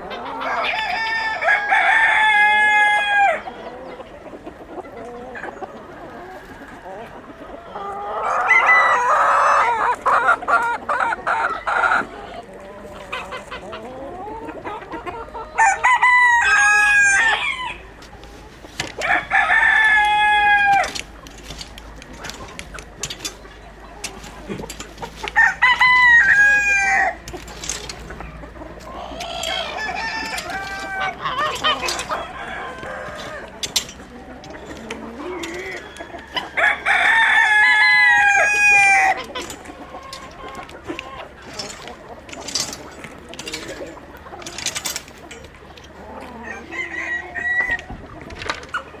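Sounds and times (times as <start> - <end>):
chickens clucking: 0.0 - 49.0
rooster crowing: 0.4 - 3.4, 8.2 - 9.7, 15.6 - 17.9, 18.9 - 23.3, 25.2 - 27.9, 28.8 - 39.2, 46.2 - 47.9.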